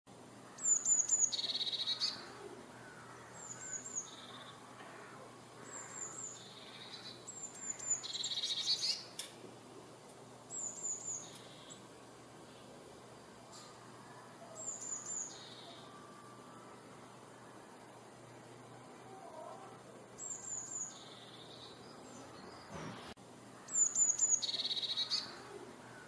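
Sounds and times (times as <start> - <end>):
other birds calling: 0.2 - 12.8, 13.4 - 26.0
bird singing with trill: 0.5 - 2.4, 3.1 - 4.6, 5.7 - 9.1, 10.5 - 11.9, 14.5 - 16.6, 20.2 - 22.8, 23.6 - 26.0.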